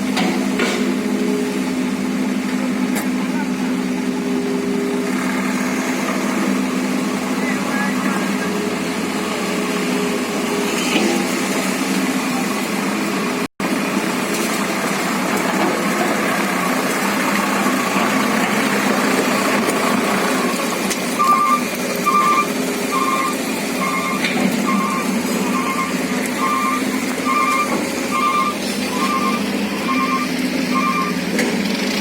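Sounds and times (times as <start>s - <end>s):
excavator diesel engine running: 0.0s - 32.0s
reversing alarm beeping: 20.3s - 31.3s.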